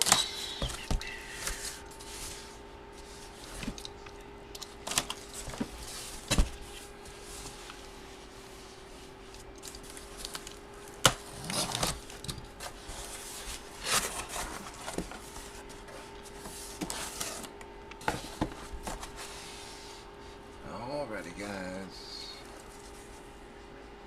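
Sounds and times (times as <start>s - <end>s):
faint steady hum: 0.0s - 24.0s
wrapping rustling: 4.6s - 17.5s.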